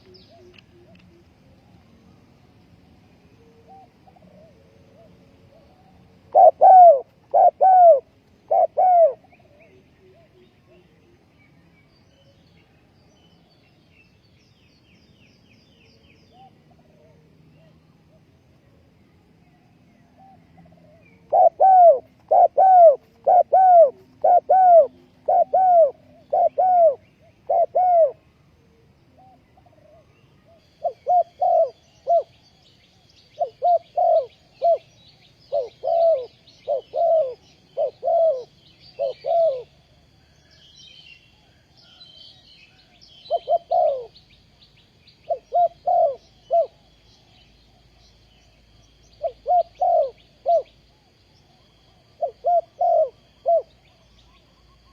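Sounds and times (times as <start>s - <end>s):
dove cooing: 3.4s - 10.9s, 20.2s - 32.4s, 33.2s - 40.6s, 42.8s - 44.2s, 45.2s - 47.0s, 49.1s - 50.8s, 51.6s - 54.9s
small birds chirping: 29.5s - 54.9s.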